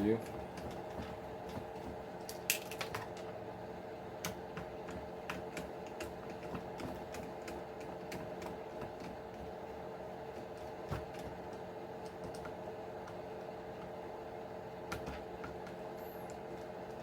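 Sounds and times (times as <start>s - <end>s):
steady background hum: 0.0s - 17.0s
plastic parts clicking and tapping: 0.1s - 3.3s, 4.2s - 9.6s, 10.3s - 13.2s, 14.9s - 17.0s.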